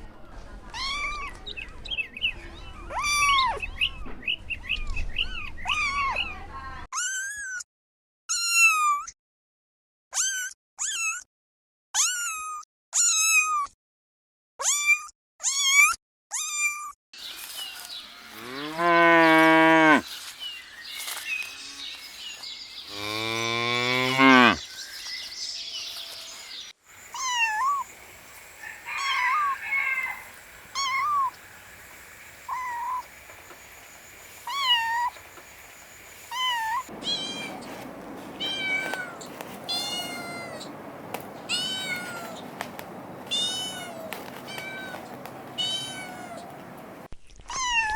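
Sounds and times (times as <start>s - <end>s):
high whining calls: 17.2s - 24.8s.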